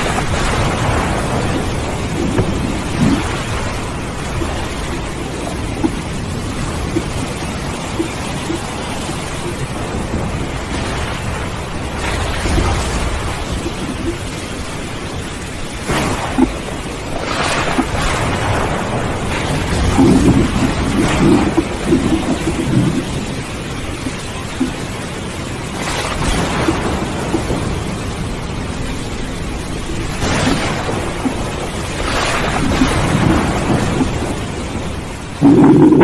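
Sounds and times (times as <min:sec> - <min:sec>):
steady rain: 0:00.0 - 0:36.0
thunder rumbling and cracking: 0:00.0 - 0:36.0.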